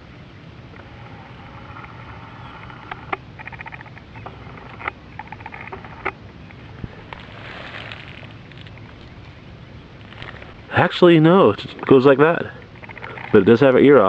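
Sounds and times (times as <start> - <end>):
sharp clicks: 11.8 - 13.5.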